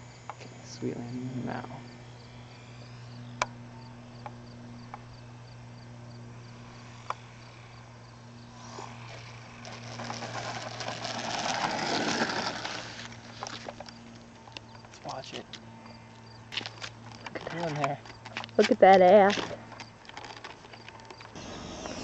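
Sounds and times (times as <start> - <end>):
model plane motor humming: 0.0 - 22.0
rough rushing noise: 8.6 - 13.3.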